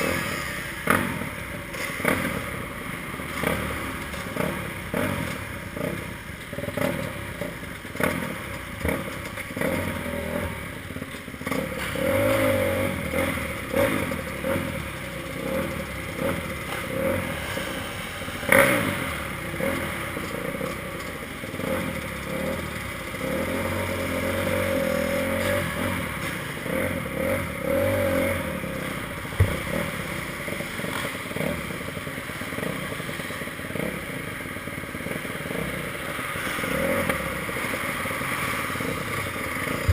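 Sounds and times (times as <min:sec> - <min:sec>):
motocross bike engine revving: 0:00.0 - 0:39.9
sharp knocks: 0:29.3 - 0:30.0.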